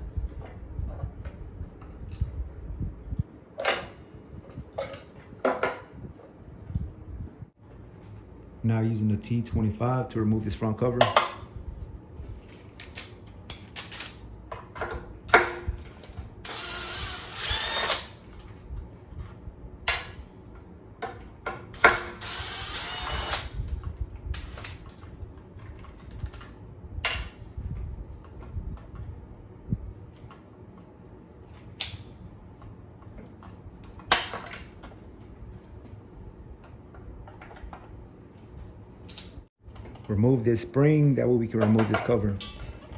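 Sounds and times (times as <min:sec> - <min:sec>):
cordless drill running: 0:16.4 - 0:18.2, 0:21.8 - 0:23.6.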